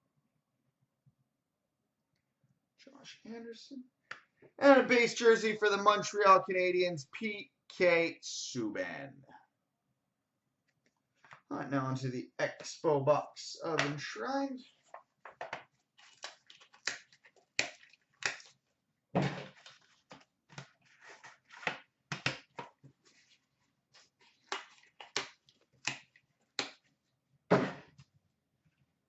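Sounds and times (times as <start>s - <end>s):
packaging crackling and rustling: 15.9s - 18.6s.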